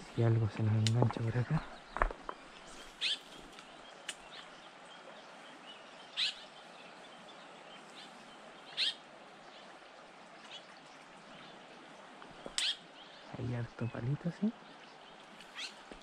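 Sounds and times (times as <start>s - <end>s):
bird calling: 1.2s - 4.5s, 5.8s - 9.1s, 12.2s - 14.0s, 15.1s - 16.0s.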